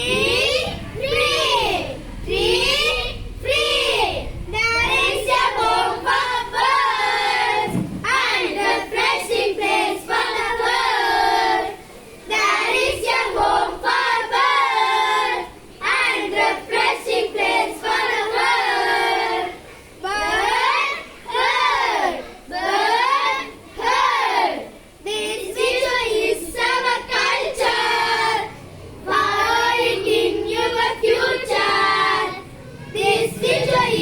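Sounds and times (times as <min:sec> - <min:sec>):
children singing together: 0:00.0 - 0:34.0.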